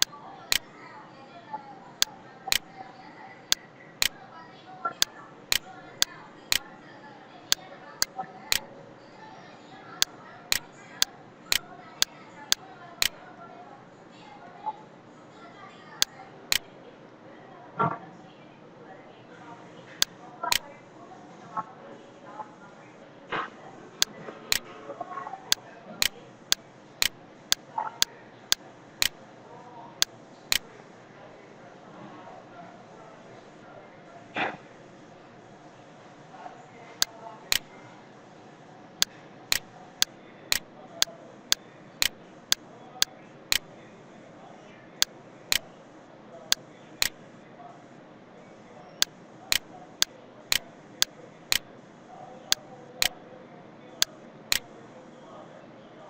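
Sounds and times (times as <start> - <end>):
computer mouse clicking: 0.0 - 0.7, 5.5 - 5.7.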